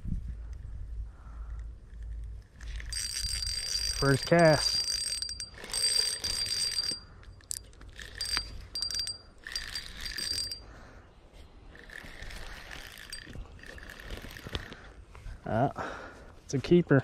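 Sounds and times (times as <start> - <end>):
reel clicks: 1.5 - 10.6, 11.7 - 14.8
fishing reel whirring: 1.9 - 10.7, 11.6 - 14.8.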